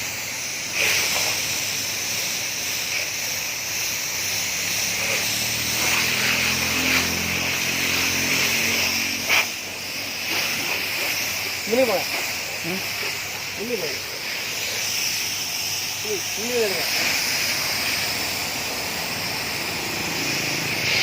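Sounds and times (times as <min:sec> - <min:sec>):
pressure washer spraying water: 0:00.0 - 0:21.0
low engine hum: 0:17.5 - 0:21.0.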